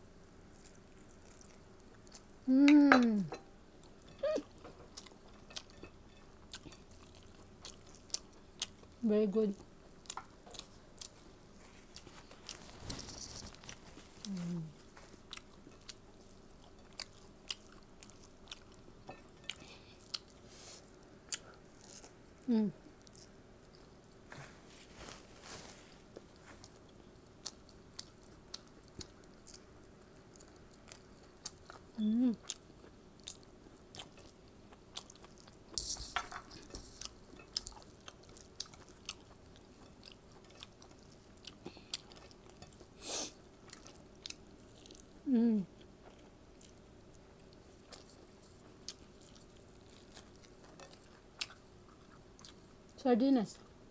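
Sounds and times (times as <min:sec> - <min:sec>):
faint steady hum: 0:00.0 - 0:53.9
chewing and mouth smacking: 0:00.4 - 0:02.3, 0:09.9 - 0:20.4, 0:22.9 - 0:24.0, 0:26.1 - 0:42.9, 0:43.6 - 0:45.2, 0:45.8 - 0:53.0.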